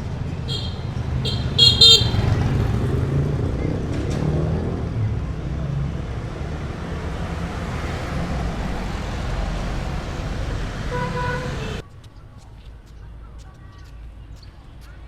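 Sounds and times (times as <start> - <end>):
road traffic noise: 0.0 - 11.8
vehicle horn tooting: 0.5 - 2.9, 10.9 - 11.8.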